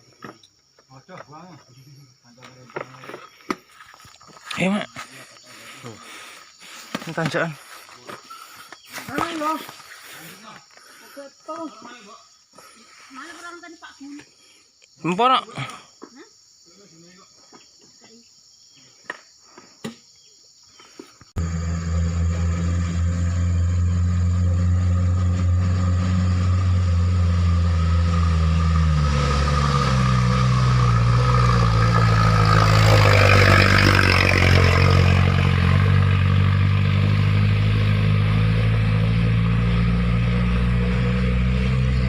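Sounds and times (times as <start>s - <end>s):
truck engine under load: 21.4s - 42.0s.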